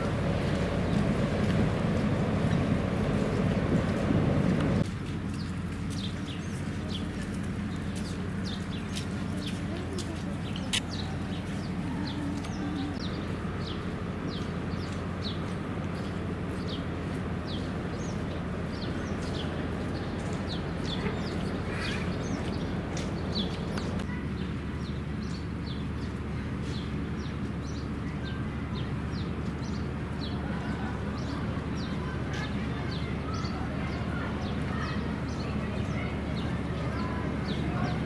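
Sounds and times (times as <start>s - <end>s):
low rumble: 0.0s - 4.9s
small birds chirping: 0.0s - 38.0s.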